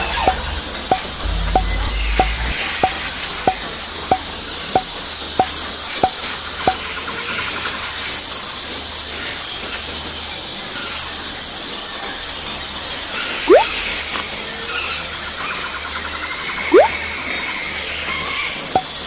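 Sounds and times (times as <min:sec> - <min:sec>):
short evenly spaced ticks: 0:00.0 - 0:06.8, 0:13.5 - 0:13.7.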